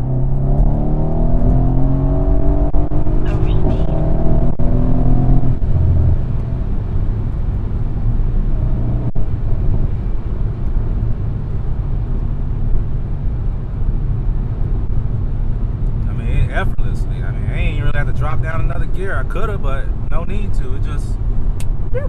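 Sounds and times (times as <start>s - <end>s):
car engine running: 0.0s - 21.9s
low rumble of car cruising: 0.0s - 22.0s.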